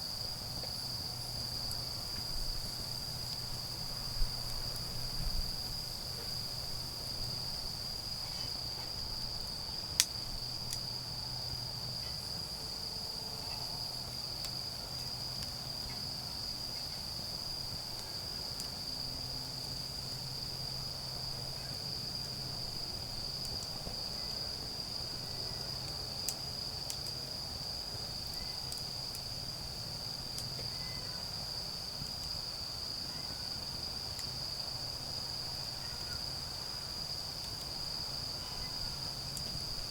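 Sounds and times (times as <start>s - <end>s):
crickets trilling: 0.0s - 39.9s
wood fire crackling: 0.1s - 12.8s, 19.6s - 30.6s.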